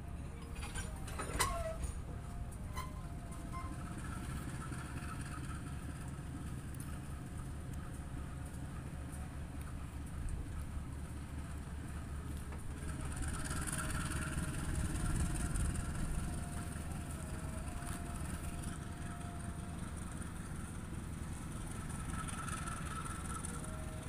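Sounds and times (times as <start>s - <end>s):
train wheels rumbling on rails: 0.0s - 24.0s
faint thin whine: 12.9s - 24.0s.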